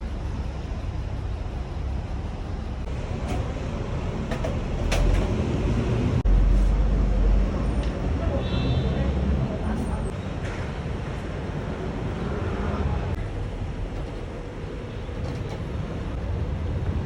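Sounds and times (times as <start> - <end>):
low background rumble: 0.0 - 7.6
heavy low rumble: 0.0 - 8.4, 9.0 - 17.0.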